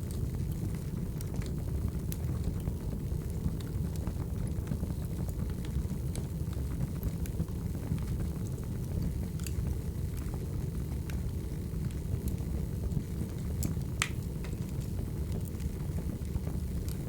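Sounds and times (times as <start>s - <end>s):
low rumble of flames: 0.0s - 17.0s
sharp pops and snaps of fire: 0.0s - 17.0s
firewood crackling: 13.6s - 17.0s.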